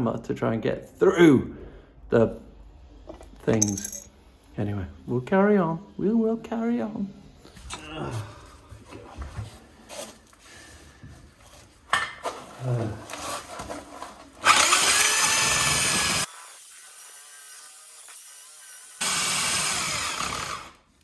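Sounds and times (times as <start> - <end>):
power drill grinding into brick: 14.4 - 20.9.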